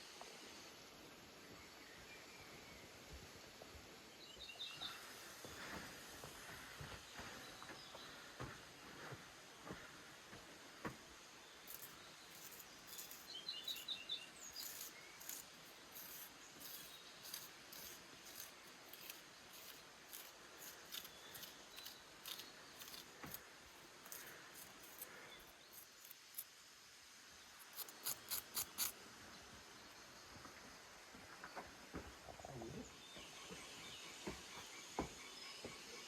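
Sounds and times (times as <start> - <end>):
bird chirping: 11.5 - 26.4
sharp high clicks: 27.6 - 28.9.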